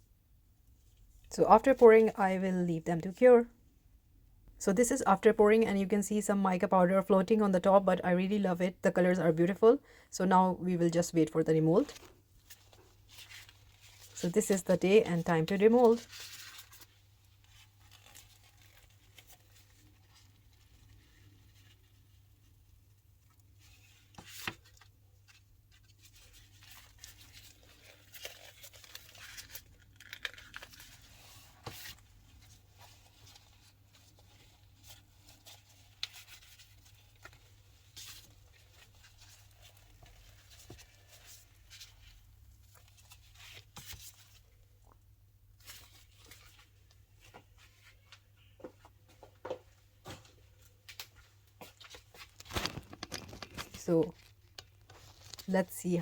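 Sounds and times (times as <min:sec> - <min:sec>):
silicone mold crackling and tearing: 0:15.9 - 0:22.6, 0:23.2 - 0:33.7, 0:51.8 - 0:55.5.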